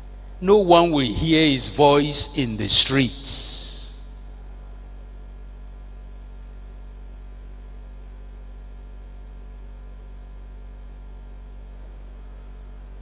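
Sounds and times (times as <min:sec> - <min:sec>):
electrical mains hum: 0:00.0 - 0:09.3.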